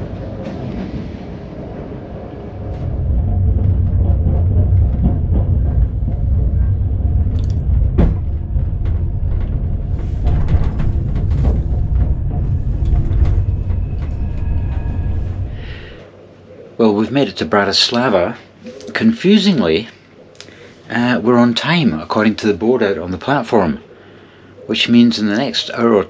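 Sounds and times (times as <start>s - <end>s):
train carriage rumbling on track: 0.0s - 16.1s.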